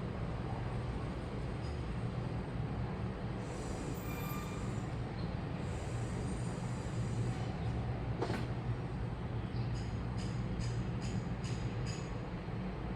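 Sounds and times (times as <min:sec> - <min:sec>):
faint high-pitched squeals: 0:03.8 - 0:04.9.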